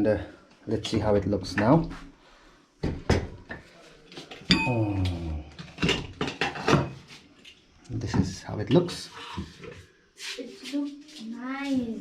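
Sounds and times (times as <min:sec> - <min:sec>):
ringing metal clank: 0:04.5 - 0:05.0
metal cookware clattering: 0:05.7 - 0:07.0.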